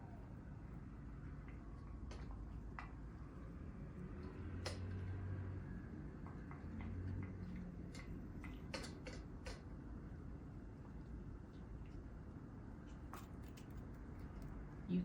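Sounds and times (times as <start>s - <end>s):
dog eating from a bowl: 5.9s - 10.0s.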